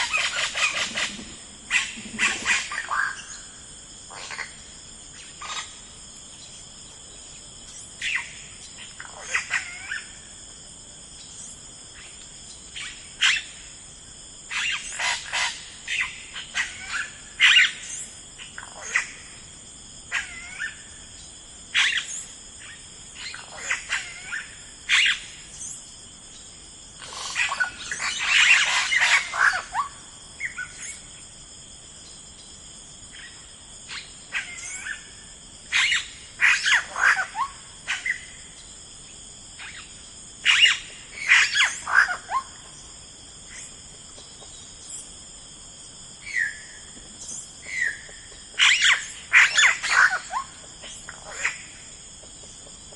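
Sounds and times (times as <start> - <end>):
birds calling and chirping: 0.0 - 4.5, 27.0 - 31.1, 39.6 - 42.8, 46.2 - 52.9.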